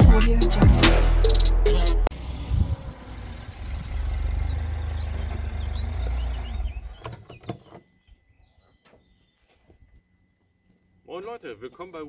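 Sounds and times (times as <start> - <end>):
car engine at low revs: 2.1 - 7.6.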